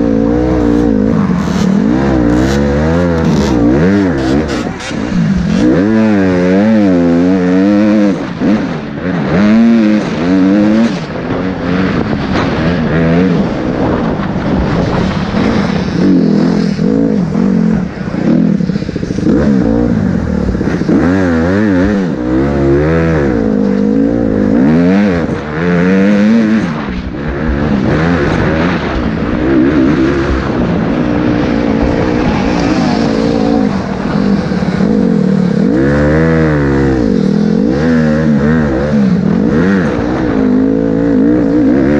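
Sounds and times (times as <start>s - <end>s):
motorbike engine revving: 0.0s - 41.9s.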